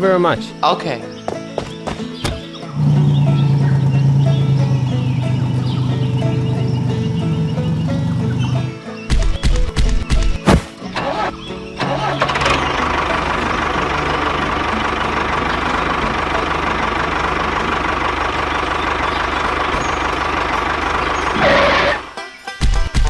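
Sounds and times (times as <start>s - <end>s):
small engine running: 2.8s - 8.8s, 11.0s - 22.2s.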